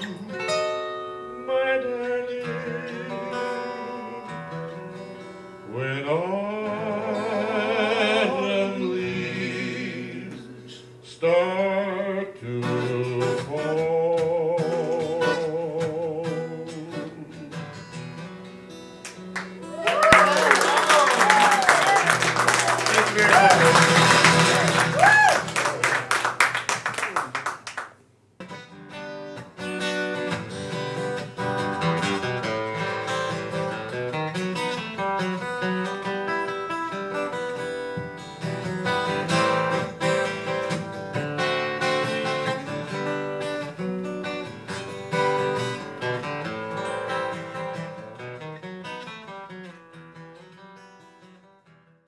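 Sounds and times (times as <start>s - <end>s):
acoustic guitar playing: 0.0s - 27.6s, 28.3s - 52.0s
applause: 19.0s - 28.0s.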